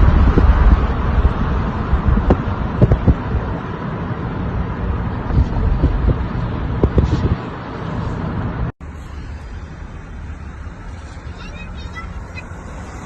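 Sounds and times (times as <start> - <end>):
low thumps: 0.0 - 3.6
wind buffeting microphone: 0.0 - 8.7
low rumble: 0.0 - 11.4.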